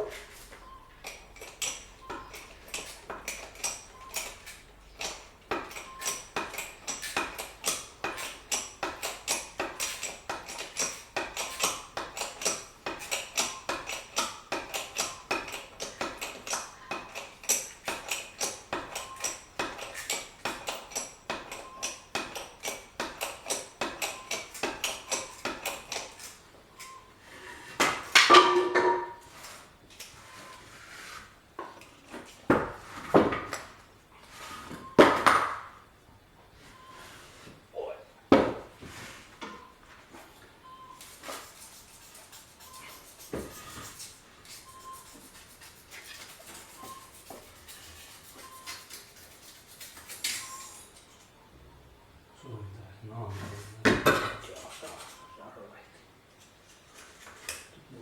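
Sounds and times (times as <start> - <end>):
metal tapping: 1.0 - 27.0.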